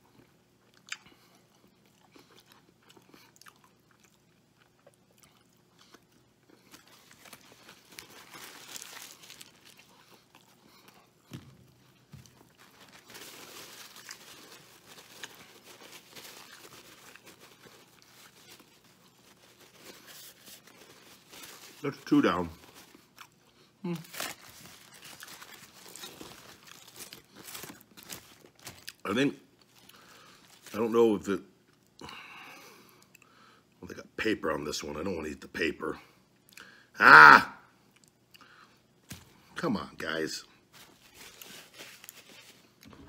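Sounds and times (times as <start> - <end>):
man chewing a burger: 0.1 - 21.7, 22.8 - 30.7.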